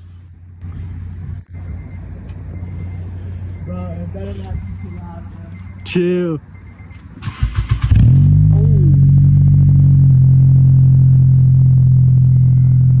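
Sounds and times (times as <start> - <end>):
car engine starter cranking: 7.2 - 8.6.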